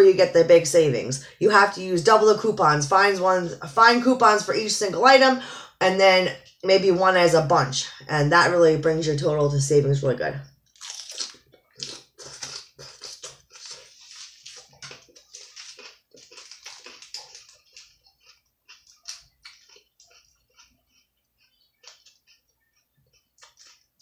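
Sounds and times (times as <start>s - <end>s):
chewing crisp lettuce: 10.7s - 24.0s
paper receipt crinkling: 12.3s - 18.0s.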